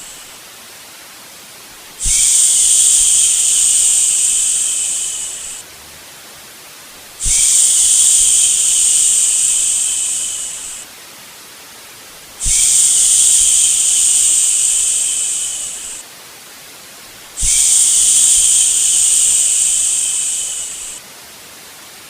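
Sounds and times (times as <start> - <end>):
faint steady hiss: 0.0 - 22.0
person shushing: 2.0 - 5.6, 7.2 - 10.8, 12.4 - 16.0, 17.4 - 21.0.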